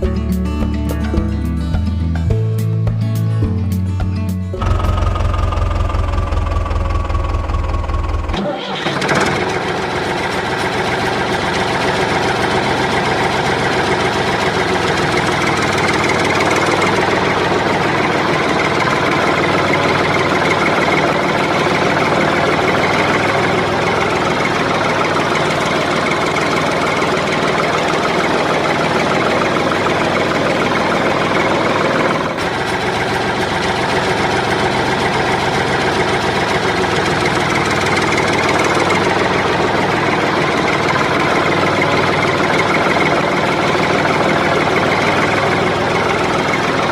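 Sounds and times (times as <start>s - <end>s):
motor running: 4.6s - 46.9s.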